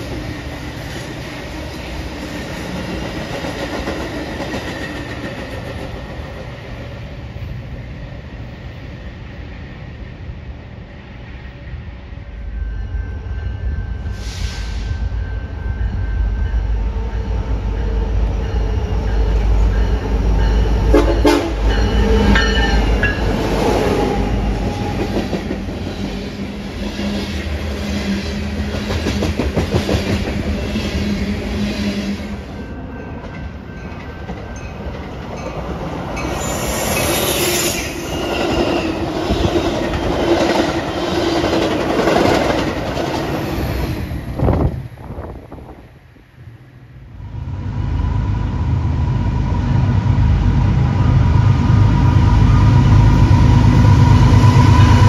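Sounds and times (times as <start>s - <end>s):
diesel commuter train rolling past: 0.0s - 55.0s
diesel locomotives rumbling: 0.0s - 55.0s.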